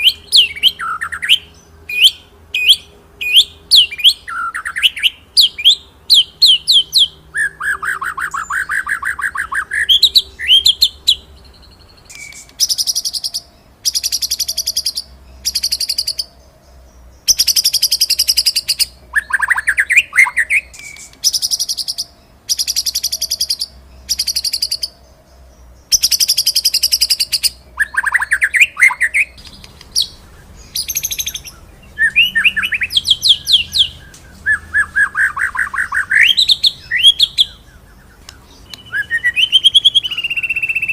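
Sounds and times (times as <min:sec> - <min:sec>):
bird singing trills: 0:00.0 - 0:40.9
low sweeping whistles: 0:22.6 - 0:40.9.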